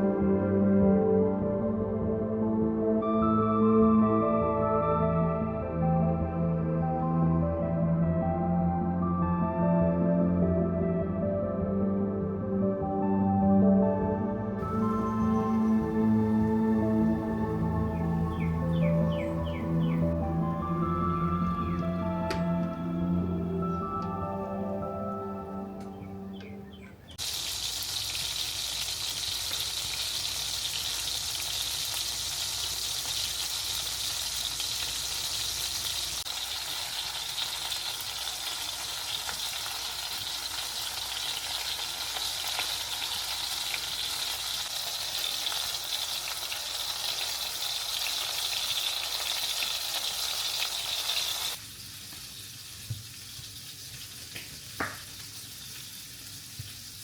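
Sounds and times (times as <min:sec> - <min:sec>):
food sizzling in a pan: 0:27.2 - 0:57.0.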